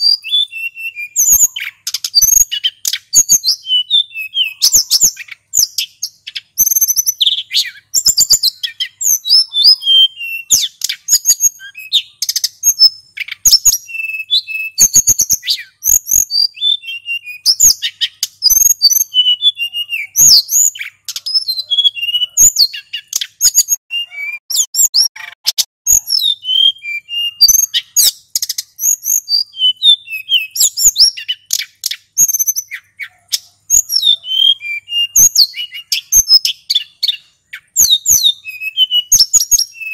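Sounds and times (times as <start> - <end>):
bird singing rapid chirps and trills: 0.0 - 39.9
sharp bird clicks: 1.2 - 3.4, 10.5 - 11.3, 12.2 - 14.0, 22.7 - 23.8, 30.4 - 33.9.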